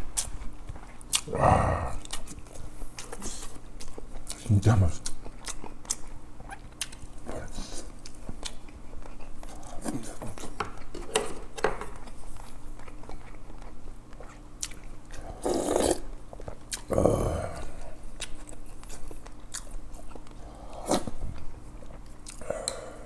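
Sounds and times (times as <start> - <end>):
person chewing soft food: 0.0 - 23.0
wet lip-smacking: 22.2 - 22.9
mouth clicks: 22.3 - 22.9.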